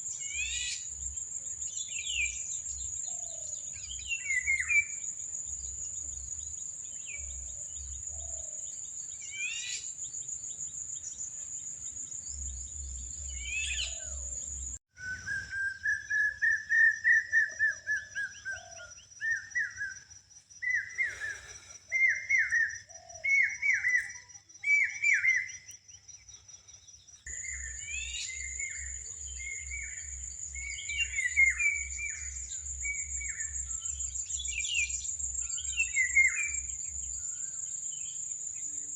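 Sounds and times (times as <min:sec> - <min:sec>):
birds whistling: 0:01.7 - 0:05.0, 0:12.4 - 0:20.0, 0:20.6 - 0:25.7, 0:27.3 - 0:38.2.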